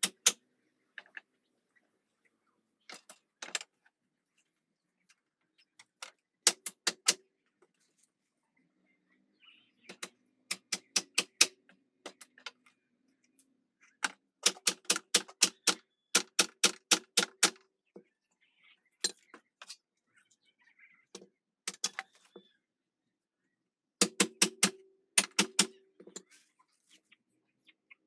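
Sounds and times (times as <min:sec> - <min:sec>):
hammer striking nails: 0:14.4 - 0:17.6, 0:24.0 - 0:25.7.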